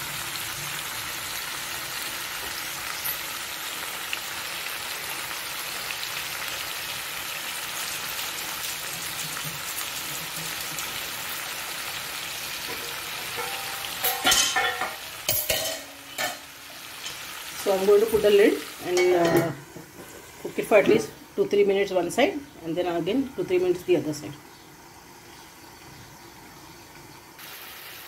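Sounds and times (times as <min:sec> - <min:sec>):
chicken frying in oil: 0:00.0 - 0:19.3, 0:24.8 - 0:28.0
cookware clanking: 0:12.6 - 0:17.3, 0:18.0 - 0:21.1.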